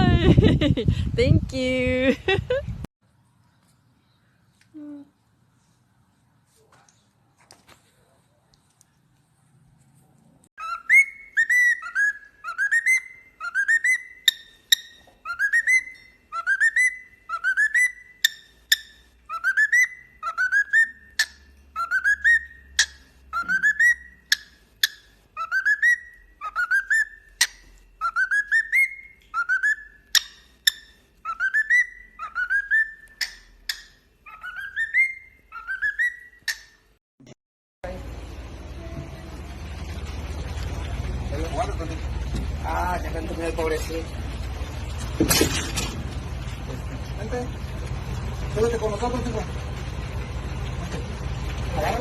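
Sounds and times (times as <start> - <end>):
bird whistling rising call: 10.6 - 14.4.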